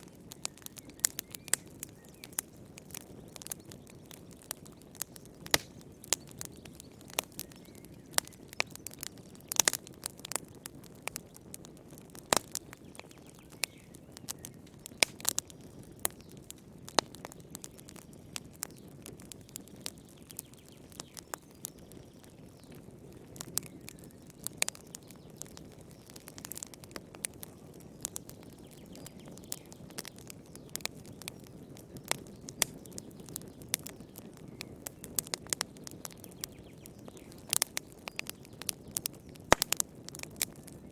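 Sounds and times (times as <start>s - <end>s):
wood crackling and popping: 0.0s - 40.9s.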